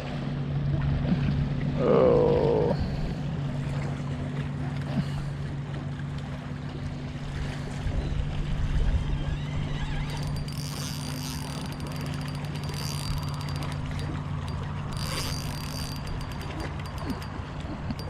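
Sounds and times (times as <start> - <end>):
low hum: 0.0 - 18.0
fishing reel clicking: 9.1 - 18.0.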